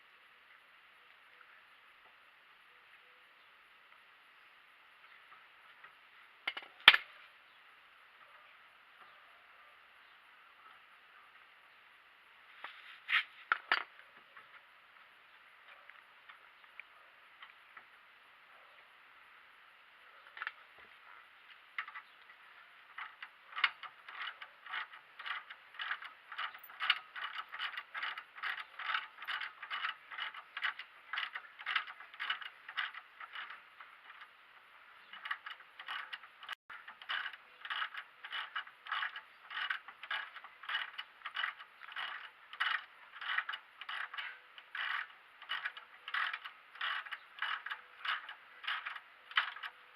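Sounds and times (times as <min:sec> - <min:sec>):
ratchet wrench clicking: 0:21.8 - 0:34.4, 0:35.0 - 0:49.9.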